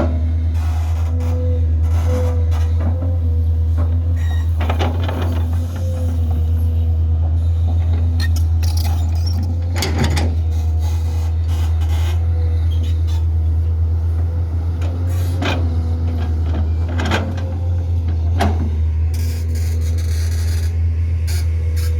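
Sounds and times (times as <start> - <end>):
bulldozer diesel engine drone: 0.0 - 21.9.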